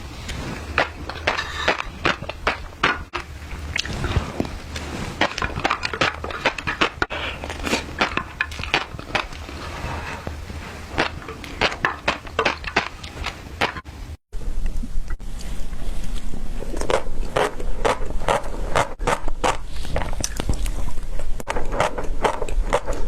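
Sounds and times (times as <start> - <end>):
fish roe crackling when chewed: 0.1 - 13.9.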